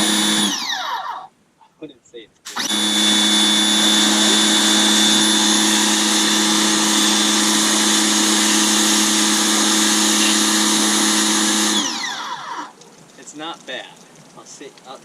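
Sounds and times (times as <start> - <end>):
pressure washer running: 0.0 - 1.0, 2.5 - 12.8.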